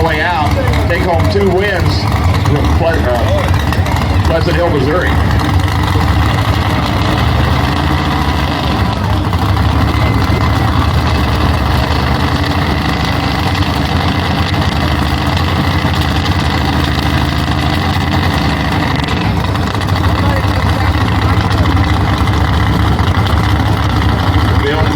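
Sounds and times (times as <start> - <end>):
engine running at high idle: 0.0 - 24.9.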